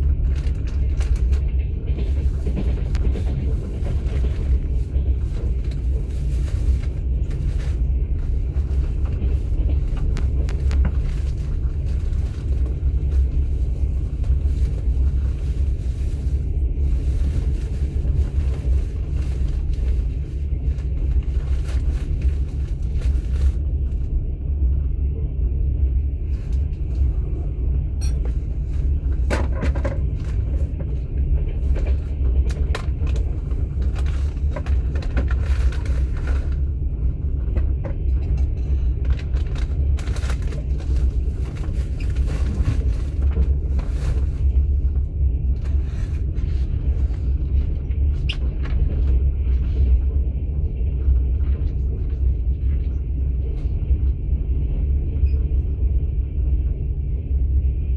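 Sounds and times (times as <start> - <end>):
train wheels rumbling: 0.0 - 57.9.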